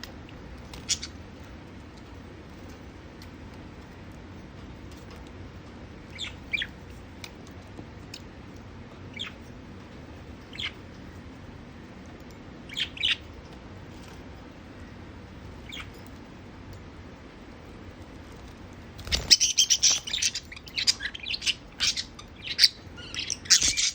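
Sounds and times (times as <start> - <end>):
low background hum: 0.0 - 23.9
budgerigars chirping: 0.7 - 1.2, 6.1 - 6.8, 9.1 - 9.4, 10.5 - 10.8, 12.7 - 13.2, 19.1 - 23.9.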